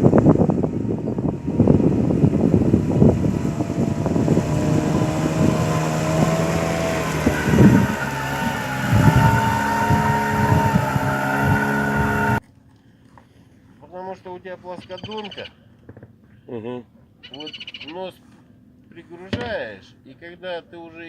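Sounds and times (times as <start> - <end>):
outboard motor running: 0.0 - 12.4
wind on microphone: 0.0 - 12.4.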